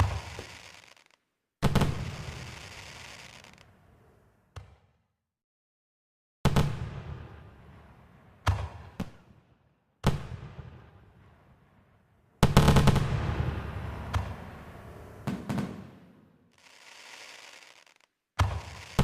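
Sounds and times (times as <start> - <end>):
fireworks booming: 0.0 - 3.7, 12.5 - 19.0
fireworks crackling: 0.0 - 3.8, 16.5 - 19.0.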